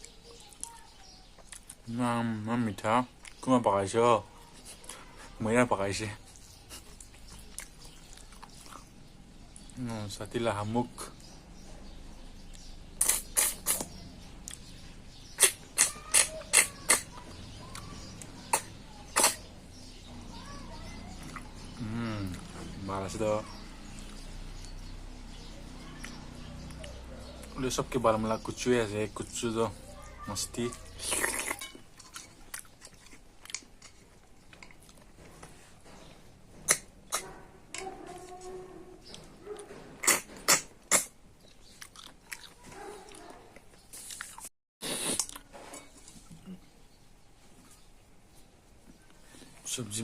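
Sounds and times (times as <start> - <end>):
mouth smacks while chewing: 6.7 - 8.9, 12.5 - 14.7, 18.5 - 19.5, 39.6 - 46.4
wet mouth clicks: 12.5 - 14.7, 15.4 - 17.8, 18.5 - 19.5, 31.0 - 34.0, 36.7 - 37.4, 40.0 - 43.2, 44.0 - 45.5.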